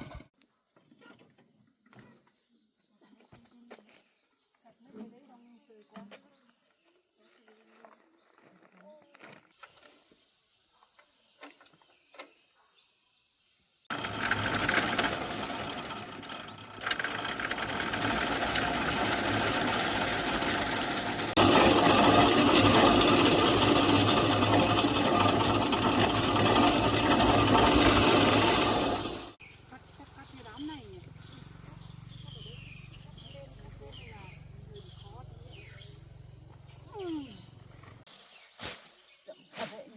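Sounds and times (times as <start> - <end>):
insects chirping: 0.0 - 39.9
engine running loudly: 13.9 - 29.4.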